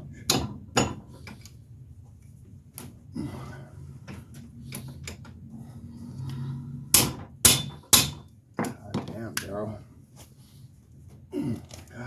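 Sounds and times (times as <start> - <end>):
loud sharp metal knocks: 7.0 - 8.2.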